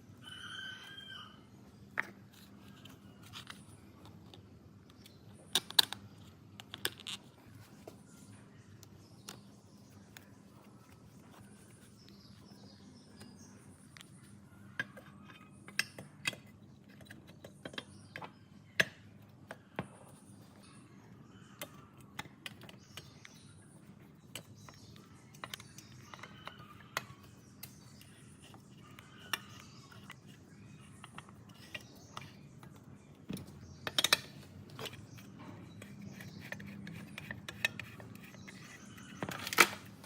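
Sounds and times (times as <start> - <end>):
metal parts and tools clicking: 33.8 - 40.0.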